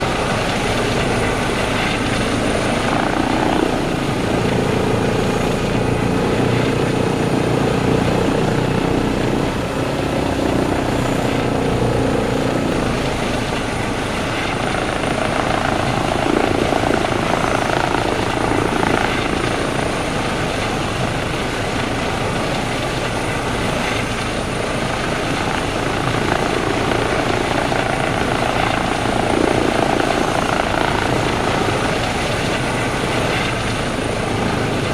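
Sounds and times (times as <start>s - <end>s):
helicopter engines and rotors: 0.0s - 34.9s.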